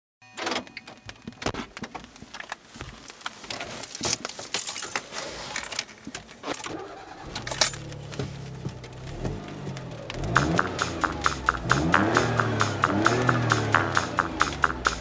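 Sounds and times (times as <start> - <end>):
keys jangling: 3.5 - 6.7, 7.3 - 7.9
car engine starting and idling: 6.3 - 15.0.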